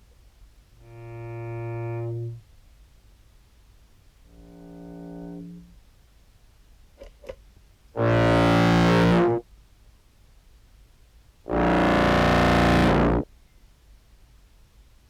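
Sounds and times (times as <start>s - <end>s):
distorted clarinet notes: 0.8s - 2.4s, 4.3s - 5.7s, 8.0s - 9.4s, 11.5s - 13.2s.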